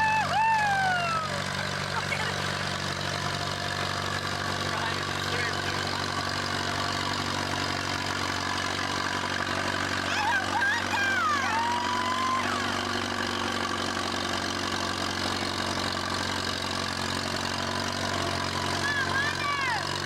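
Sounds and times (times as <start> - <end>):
tractor engine running under load: 0.0 - 20.0
high wavering cries: 10.0 - 13.0.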